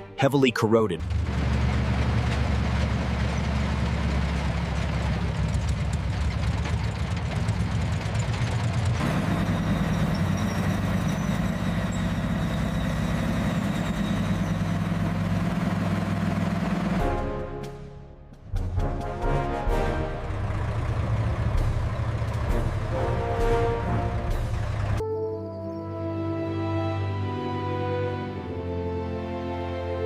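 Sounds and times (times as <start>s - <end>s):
heavy vehicle engine idling: 1.0s - 17.0s, 19.7s - 25.0s.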